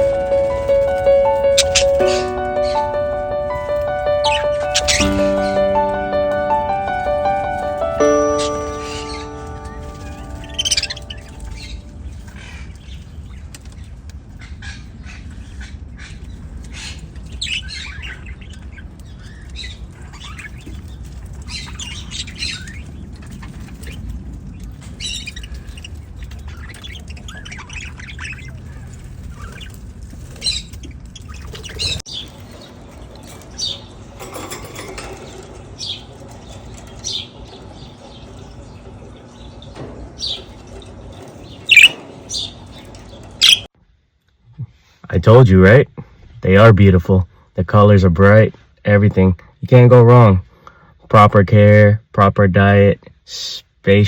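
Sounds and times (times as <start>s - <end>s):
budgerigars chirping and squawking: 0.0s - 3.0s, 4.1s - 5.6s, 8.4s - 13.8s, 14.4s - 24.0s, 25.0s - 32.6s, 41.2s - 43.7s.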